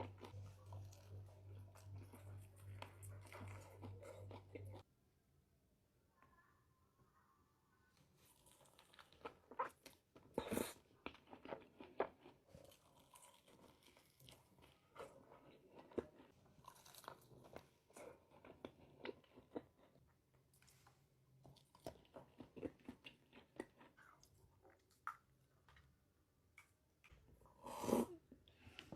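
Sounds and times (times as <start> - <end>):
chewing crunchy fried chicken: 0.0 - 4.8, 8.2 - 25.3.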